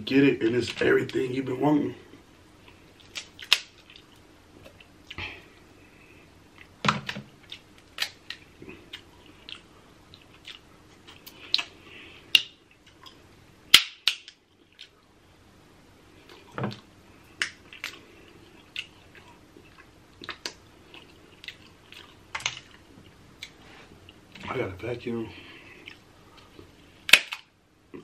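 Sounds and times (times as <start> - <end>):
close chewing and mouth sounds: 2.1 - 6.8, 7.4 - 13.3, 14.0 - 15.2, 16.1 - 24.4, 25.4 - 28.0
crab shell snapping: 3.0 - 3.8, 13.7 - 14.4, 27.1 - 27.5.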